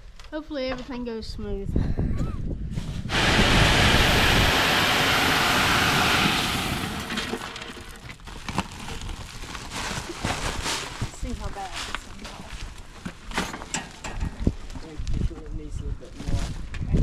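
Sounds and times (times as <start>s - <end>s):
corn pouring: 3.1s - 8.3s.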